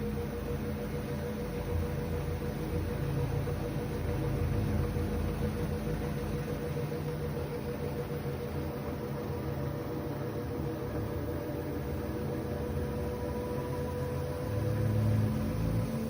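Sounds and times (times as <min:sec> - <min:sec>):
washing machine humming: 0:00.0 - 0:16.0.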